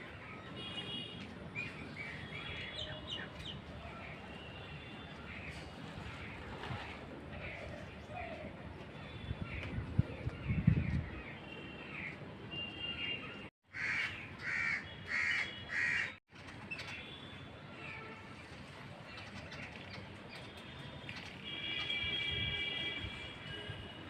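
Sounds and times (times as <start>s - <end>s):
crow cawing: 13.7s - 16.2s.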